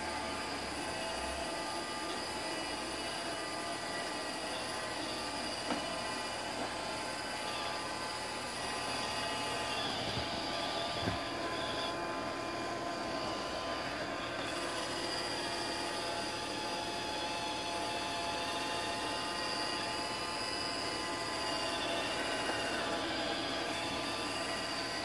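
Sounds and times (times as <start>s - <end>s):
robot vacuum whirring: 0.0s - 25.0s.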